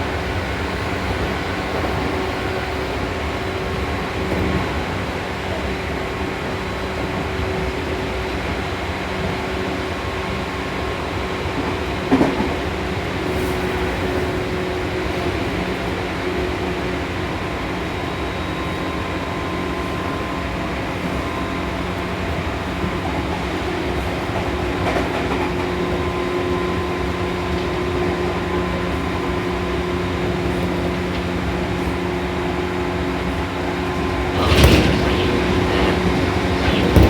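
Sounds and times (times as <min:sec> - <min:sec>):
train wheels rumbling on rail: 0:00.0 - 0:37.0
running gear humming: 0:33.8 - 0:37.0
loud rush: 0:34.3 - 0:37.0.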